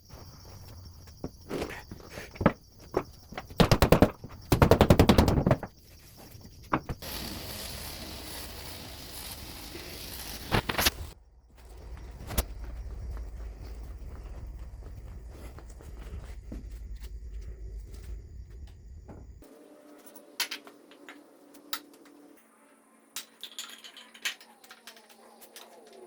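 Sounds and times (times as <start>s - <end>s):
steady air hiss: 7.0s - 11.2s.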